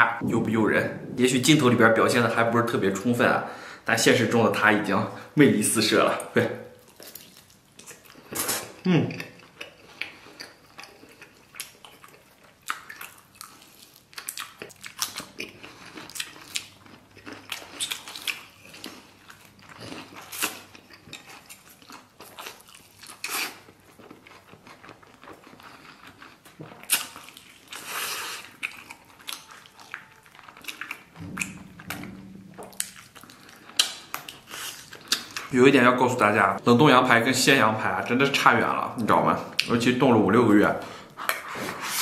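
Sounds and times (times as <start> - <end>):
wet biting and chewing: 6.9 - 35.5.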